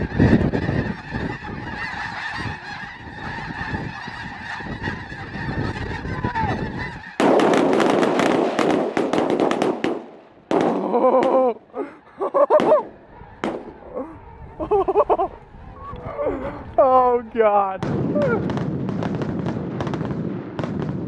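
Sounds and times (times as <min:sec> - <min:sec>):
close goose honks: 0:00.0 - 0:07.3
flock of geese honking: 0:00.0 - 0:08.7, 0:12.4 - 0:18.3
loud rapid crackling: 0:05.9 - 0:11.6.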